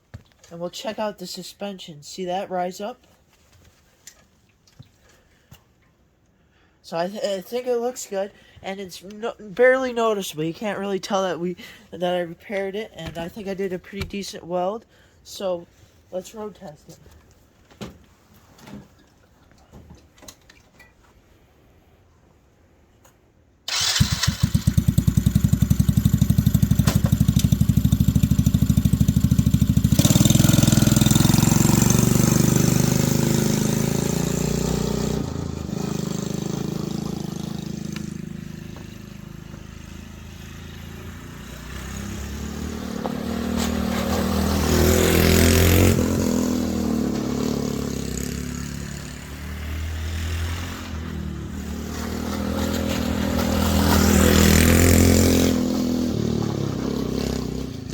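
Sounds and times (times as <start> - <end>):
go-kart engine running: 23.7 - 57.9.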